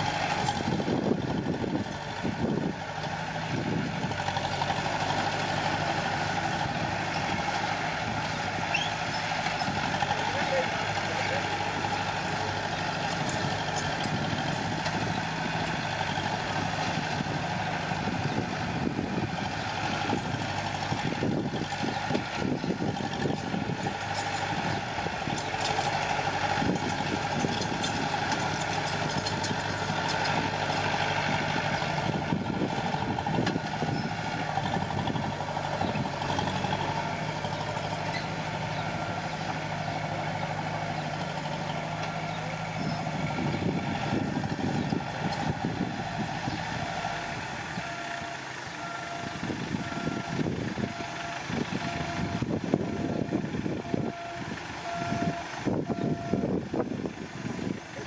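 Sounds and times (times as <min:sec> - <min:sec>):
heavy machinery diesel engine: 0:00.0 - 0:58.0
machinery rattling and clanking: 0:00.0 - 0:58.0.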